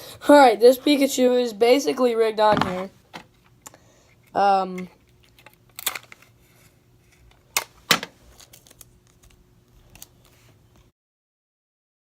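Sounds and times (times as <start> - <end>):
card rustling: 5.0 - 10.6.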